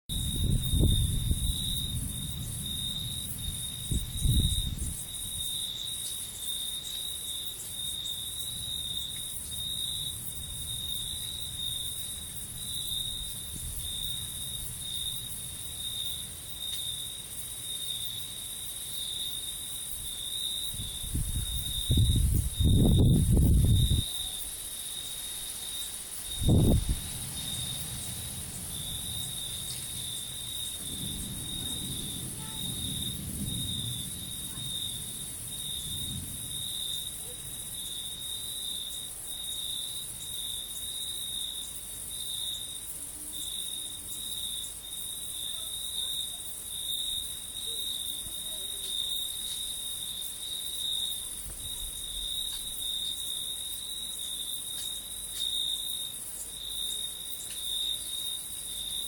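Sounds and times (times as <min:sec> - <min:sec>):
thunder rumbling: 0:00.1 - 0:05.8, 0:08.5 - 0:16.2, 0:20.0 - 0:24.6, 0:26.3 - 0:38.3
insects chirping: 0:00.1 - 0:59.0.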